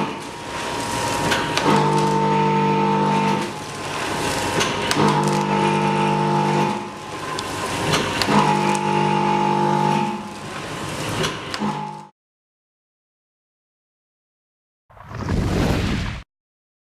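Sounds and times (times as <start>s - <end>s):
packaging machine motor hum: 0.0s - 12.1s
mechanical clicks and clacks: 1.2s - 2.1s, 3.2s - 5.6s, 6.5s - 8.9s.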